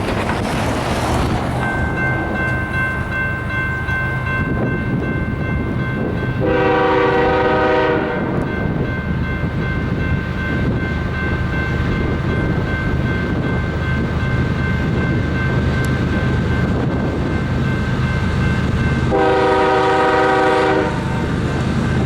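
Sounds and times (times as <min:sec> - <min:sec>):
diesel locomotive engines rumbling: 0:00.0 - 0:22.0
level crossing bell ringing: 0:01.6 - 0:06.6
train horn blast: 0:06.4 - 0:08.5, 0:19.1 - 0:21.2.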